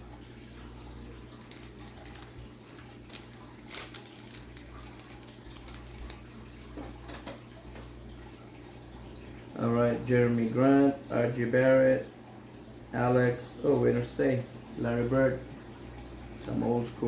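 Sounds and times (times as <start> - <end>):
cards and wrapper rustling: 1.4 - 6.4.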